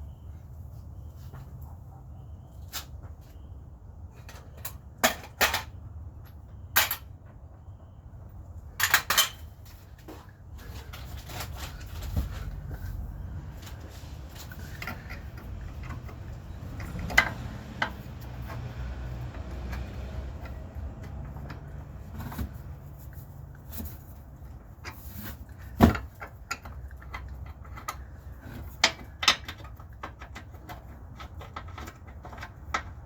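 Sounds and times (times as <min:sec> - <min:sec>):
metal tools clinking: 0:08.8 - 0:09.8.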